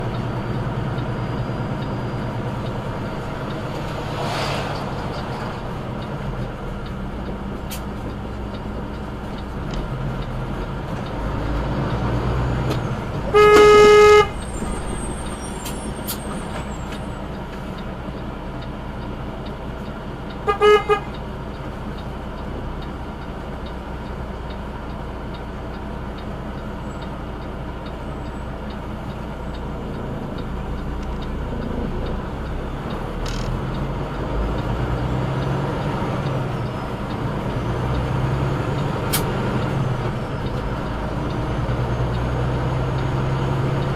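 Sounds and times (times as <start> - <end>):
vehicle engine running: 0.0 - 15.4
vehicle horn honking: 13.3 - 14.5, 20.4 - 21.1.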